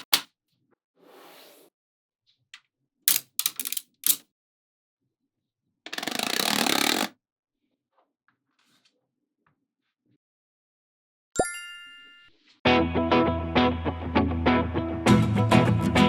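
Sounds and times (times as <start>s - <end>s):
magnetic balls snapping together: 0.0s - 0.3s, 3.1s - 4.2s.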